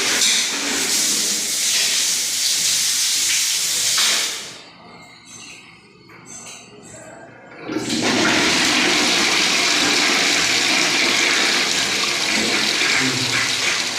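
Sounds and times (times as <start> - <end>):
toilet flushing: 0.0 - 4.6, 7.5 - 13.9.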